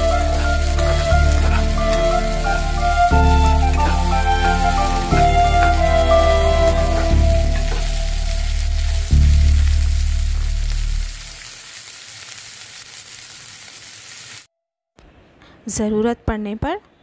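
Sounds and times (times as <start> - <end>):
background music with bass: 0.0 - 11.4
bean sprouts sizzling in oil: 0.0 - 14.5.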